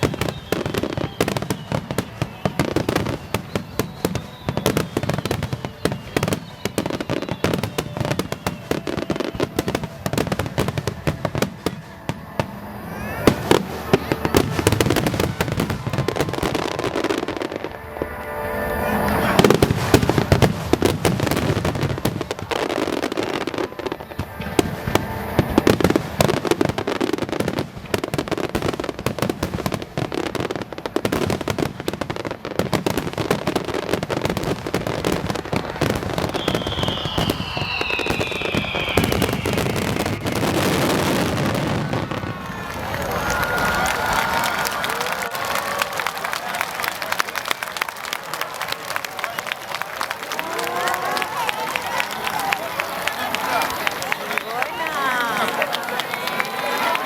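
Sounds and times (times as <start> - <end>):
fireworks rising whistles: 0.0 - 55.5
crowd voices: 0.0 - 57.0
fireworks bursts and crackling: 0.0 - 57.0
music: 0.1 - 22.3.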